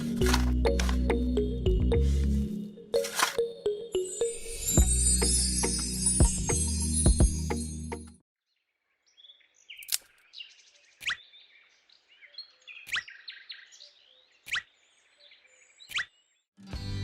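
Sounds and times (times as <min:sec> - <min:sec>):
birds chirping and twittering: 0:08.4 - 0:16.6.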